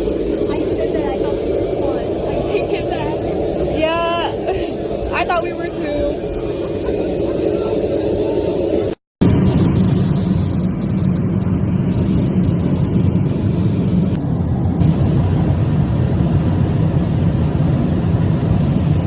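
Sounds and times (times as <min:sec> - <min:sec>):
aircraft engine noise: 0:00.0 - 0:19.0
roar of rushing air: 0:00.0 - 0:19.0.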